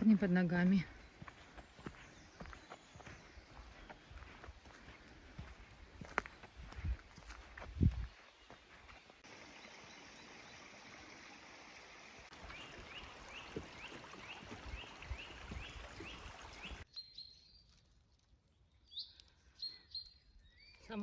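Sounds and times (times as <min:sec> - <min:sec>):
songbird chirping: 0:00.0 - 0:21.0
soft footfalls: 0:01.2 - 0:09.0.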